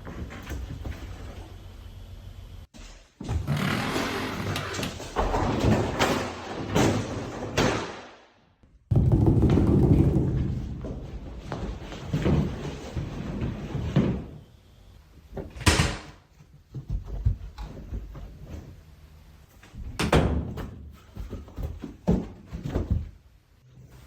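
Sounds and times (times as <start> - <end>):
sudden bangs and thuds: 8.9 - 11.0.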